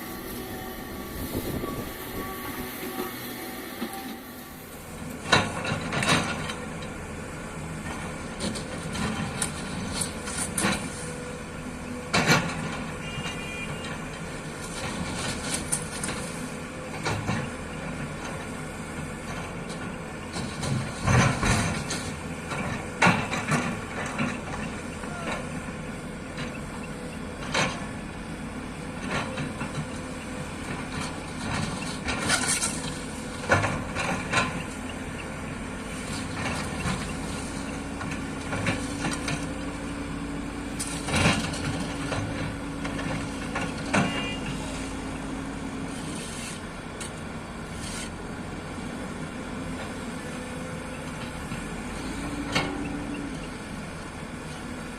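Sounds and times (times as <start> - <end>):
steady tone: 0.0 - 5.1
excavator diesel engine running: 0.0 - 54.9.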